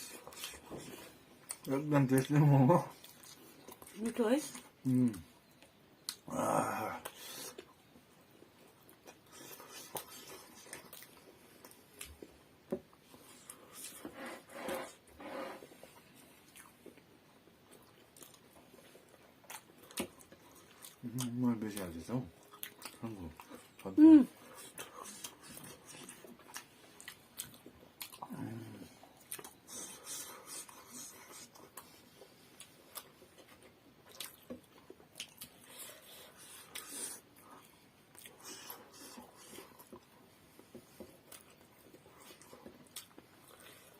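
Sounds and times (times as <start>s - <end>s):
person chewing food: 0.0s - 43.9s
low voiced hum: 6.2s - 7.4s.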